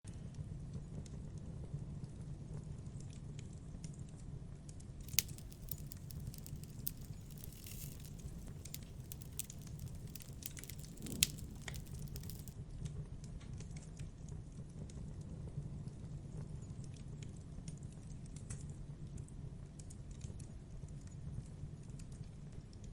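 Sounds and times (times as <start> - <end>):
sharp loud pops: 5.1 - 12.5
wood crackling in campfire: 5.1 - 12.6.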